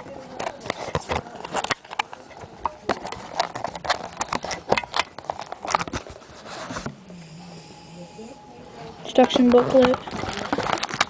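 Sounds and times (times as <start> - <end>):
packaging rustling and clicking: 0.3 - 6.9, 9.2 - 11.0.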